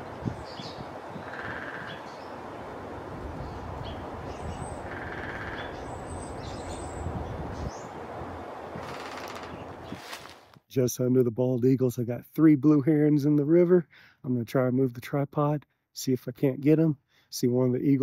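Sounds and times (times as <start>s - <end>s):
buzzy calls: 0.0s - 2.4s, 3.8s - 7.0s, 8.8s - 10.3s.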